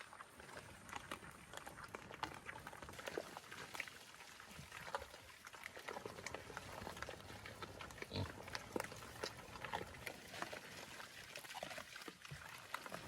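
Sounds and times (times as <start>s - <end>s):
pigs feeding and rooting: 0.0s - 13.0s.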